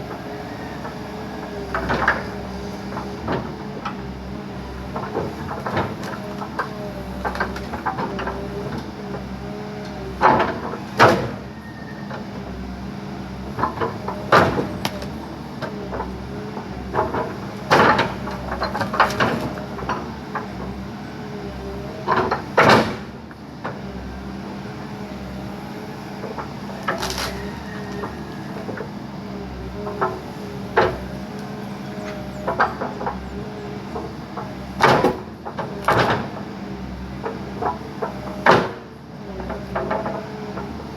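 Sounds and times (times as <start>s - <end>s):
backhoe engine running: 0.0s - 40.9s
tree wood cracking: 26.8s - 27.4s.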